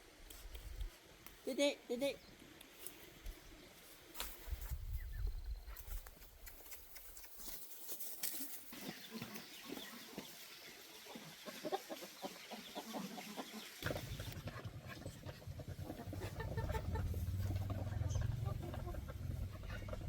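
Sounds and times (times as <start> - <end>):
chickens clucking: 8.7 - 20.0.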